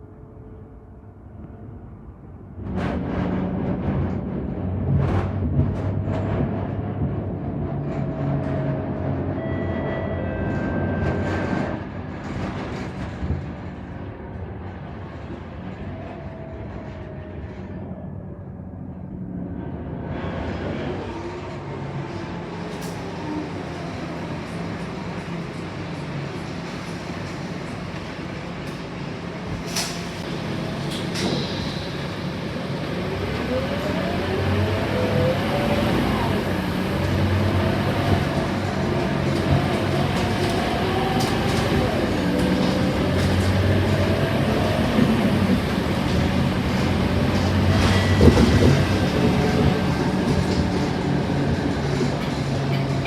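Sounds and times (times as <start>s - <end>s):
short beep: 9.4s - 11.4s
bus body rattling: 36.9s - 53.0s.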